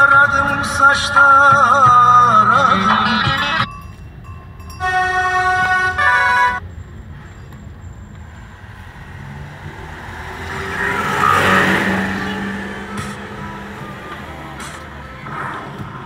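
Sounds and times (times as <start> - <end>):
vehicle horn blast: 4.8 - 6.6
vehicle passing close by: 8.1 - 15.8.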